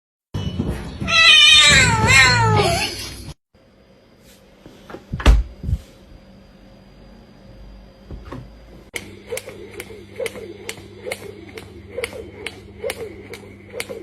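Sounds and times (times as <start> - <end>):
cat meowing: 1.0 - 3.0.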